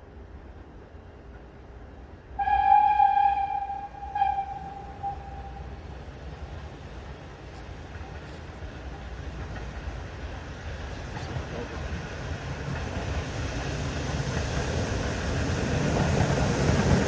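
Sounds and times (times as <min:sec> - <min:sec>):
train rumbling: 0:00.0 - 0:17.0
steam locomotive whistle: 0:02.4 - 0:05.9.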